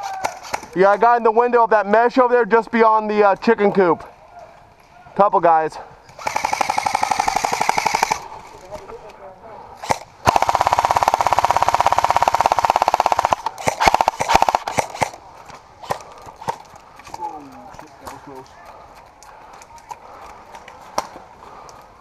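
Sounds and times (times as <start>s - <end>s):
airsoft rifle firing: 6.1s - 8.4s, 9.8s - 15.2s.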